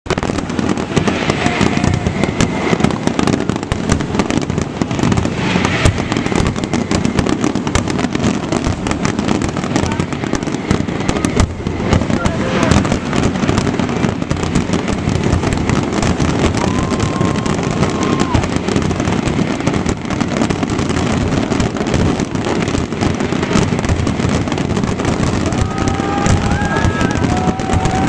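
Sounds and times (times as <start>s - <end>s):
fireworks bangs and crackles: 0.0s - 28.0s
firework whistle: 0.1s - 23.6s, 24.9s - 28.0s
low rumble: 0.4s - 20.3s.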